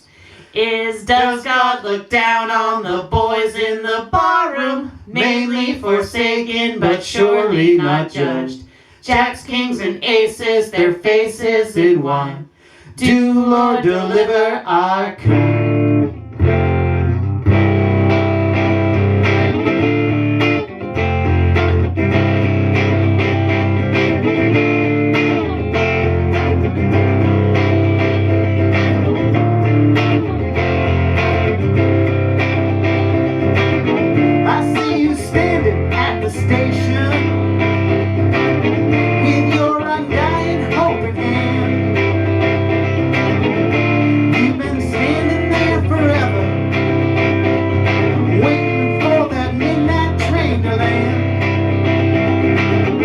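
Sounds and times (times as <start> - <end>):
guitar instrumental music: 15.2 - 53.0.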